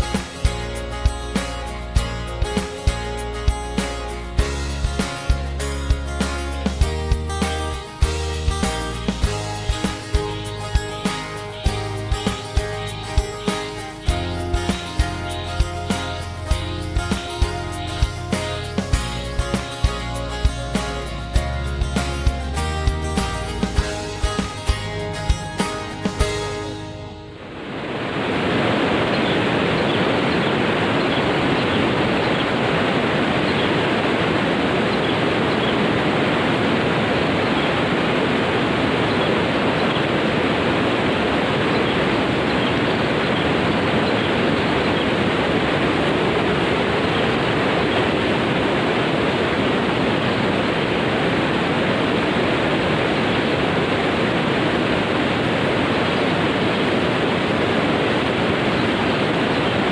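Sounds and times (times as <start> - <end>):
water rushing: 22.6 - 59.9.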